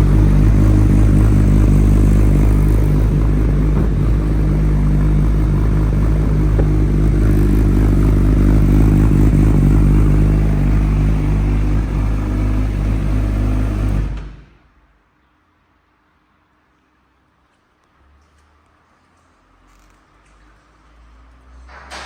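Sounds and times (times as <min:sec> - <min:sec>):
motorcycle engine running: 0:00.0 - 0:14.2.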